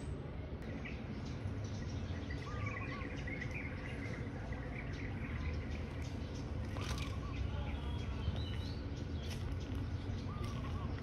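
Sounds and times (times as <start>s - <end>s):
faint high bird chirps: 0.0s - 11.0s
low outdoor background rumble: 0.0s - 11.0s.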